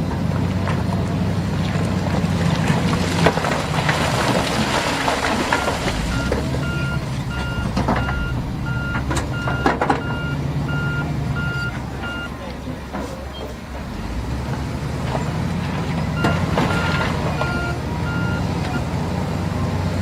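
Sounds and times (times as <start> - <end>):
heavy diesel machinery running: 0.0 - 20.0
reversing alarm beeping: 5.5 - 12.4, 16.1 - 18.8.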